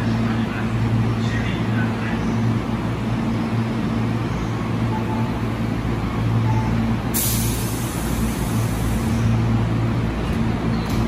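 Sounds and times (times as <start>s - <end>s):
electric train humming: 0.0s - 11.0s
compressed air hissing: 7.1s - 9.3s.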